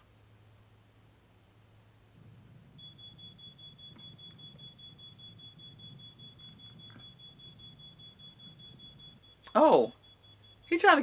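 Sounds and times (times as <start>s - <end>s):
low hum: 0.0s - 11.0s
high-pitched electronic tone pulsing: 2.3s - 11.0s.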